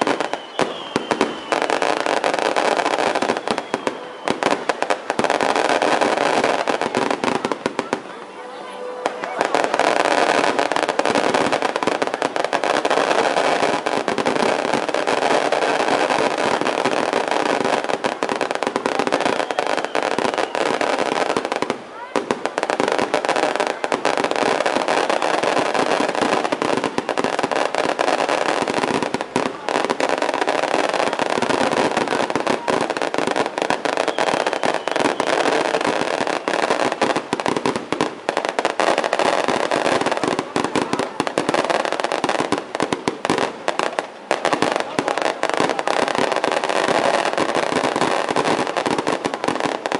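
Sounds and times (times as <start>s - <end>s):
fireworks crackling: 0.0s - 49.9s
voices: 0.1s - 14.5s, 29.0s - 37.1s, 38.8s - 42.6s, 43.3s - 49.8s.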